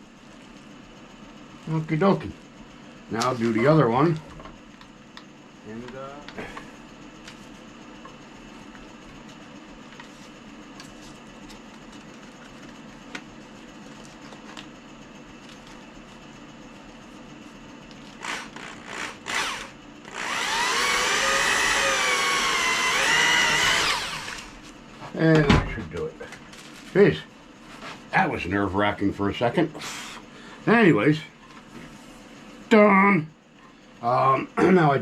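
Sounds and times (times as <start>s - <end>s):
electric drill running: 18.1s - 24.6s.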